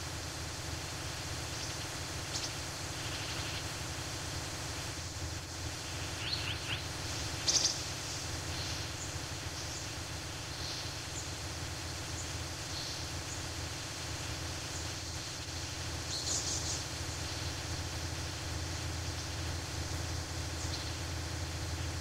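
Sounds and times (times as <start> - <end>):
forest ambience hiss: 0.0 - 22.0
small birds chirping: 1.5 - 3.7, 5.4 - 11.4, 12.0 - 13.7, 14.6 - 17.6, 18.8 - 21.9.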